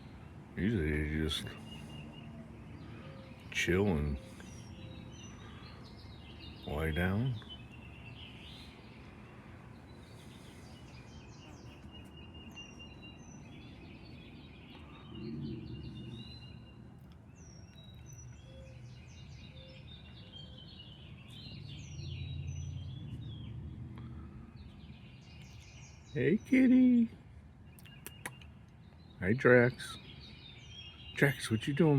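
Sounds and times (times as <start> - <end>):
small birds chirping: 0.0 - 31.9.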